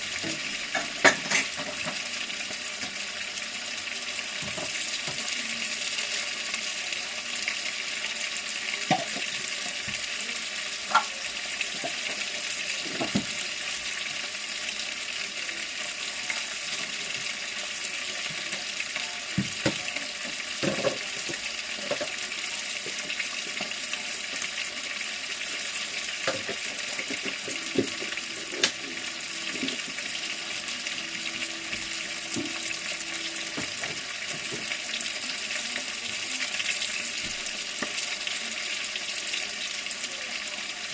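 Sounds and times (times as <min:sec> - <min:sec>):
utensils and pots clinking: 0:00.0 - 0:02.2, 0:10.8 - 0:13.4, 0:19.4 - 0:22.2, 0:26.0 - 0:34.9
steady frying hiss: 0:00.0 - 0:40.9.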